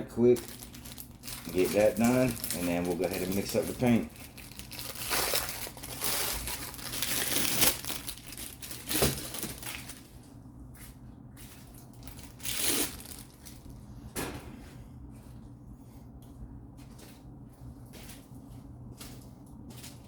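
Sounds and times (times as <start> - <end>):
cloth crinkling and crackling: 0.1 - 10.1.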